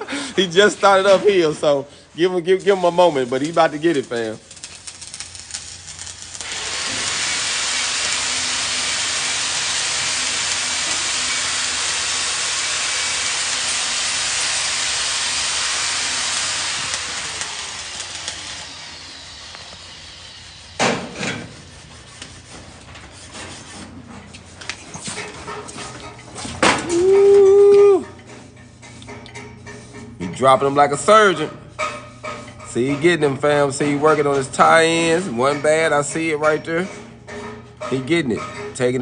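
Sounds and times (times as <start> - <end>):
angle grinder on steel: 2.6 - 22.2.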